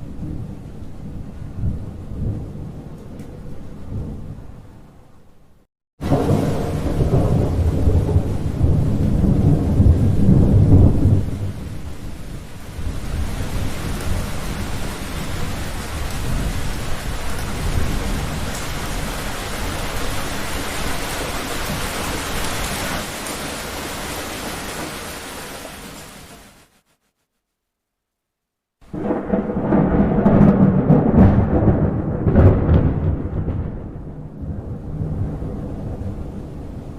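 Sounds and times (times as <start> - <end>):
rolling thunderclap: 0.0 - 4.6, 6.0 - 25.1, 28.8 - 36.9
heavy rain: 6.0 - 26.8, 28.8 - 36.9.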